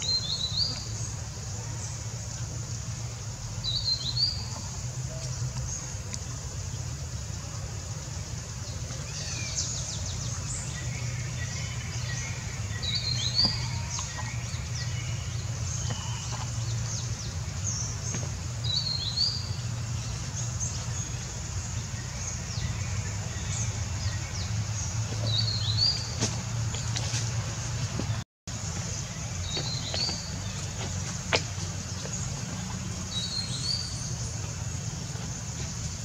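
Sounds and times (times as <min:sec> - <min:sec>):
birds calling and chirping: 0:08.2 - 0:36.0.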